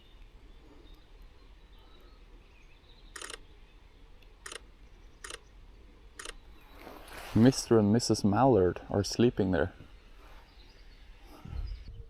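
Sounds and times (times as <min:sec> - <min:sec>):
camera shutter bursts: 0:03.2 - 0:03.4, 0:04.4 - 0:04.6.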